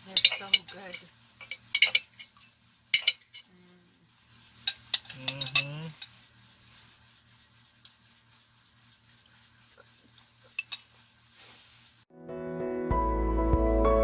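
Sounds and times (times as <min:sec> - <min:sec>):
spoons clinking against dishes: 0:00.0 - 0:03.5, 0:04.6 - 0:06.2, 0:10.2 - 0:10.9.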